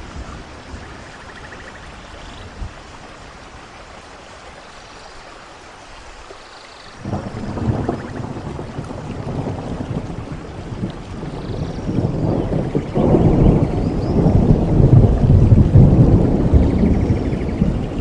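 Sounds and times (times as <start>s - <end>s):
steady rain falling: 0.0s - 18.0s
thunder rumbling: 7.0s - 18.0s.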